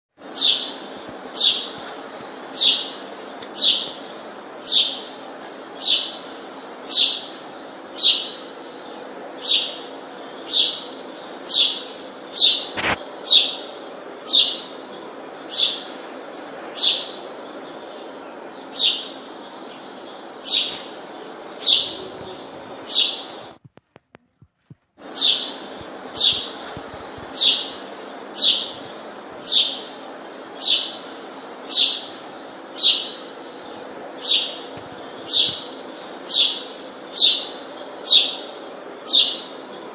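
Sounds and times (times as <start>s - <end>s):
background hum: 0.2s - 39.9s
bird chirping: 0.3s - 23.6s, 25.0s - 39.9s.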